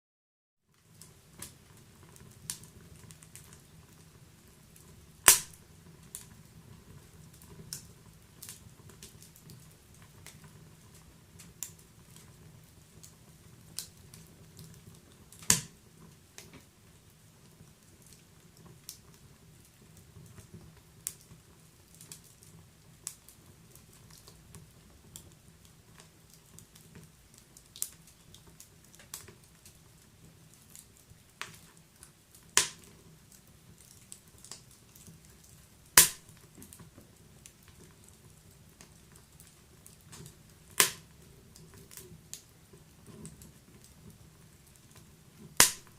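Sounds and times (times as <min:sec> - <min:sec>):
wood fire crackling: 0:00.7 - 0:45.9
sharp pops of fire: 0:04.8 - 0:06.3, 0:07.3 - 0:16.7, 0:30.6 - 0:33.0, 0:33.7 - 0:36.8, 0:39.9 - 0:41.2, 0:45.3 - 0:45.9.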